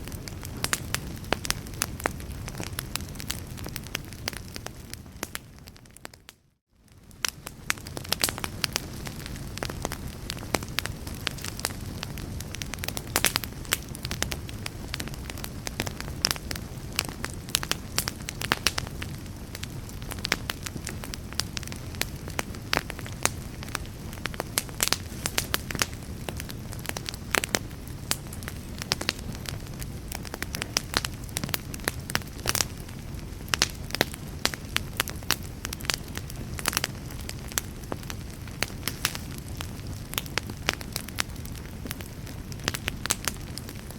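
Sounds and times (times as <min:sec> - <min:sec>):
fireplace fire crackling: 0:00.0 - 0:43.9.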